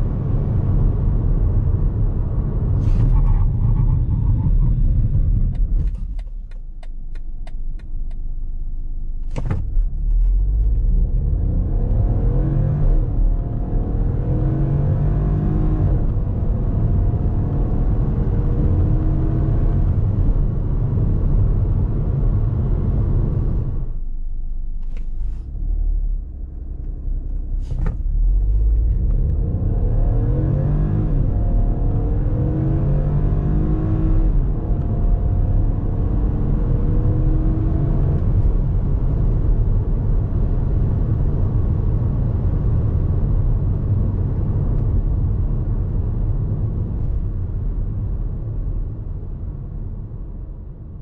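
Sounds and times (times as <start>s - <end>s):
car engine accelerating: 0.0s - 49.2s.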